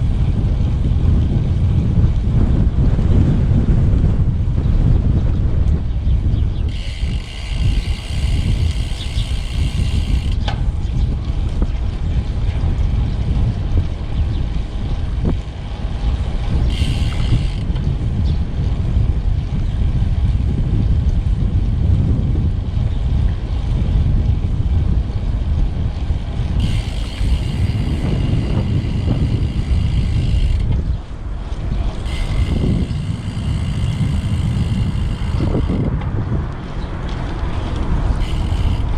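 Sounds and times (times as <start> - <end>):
wind rushing over microphone: 0.0 - 38.9
high-pitched buzz: 6.7 - 10.4.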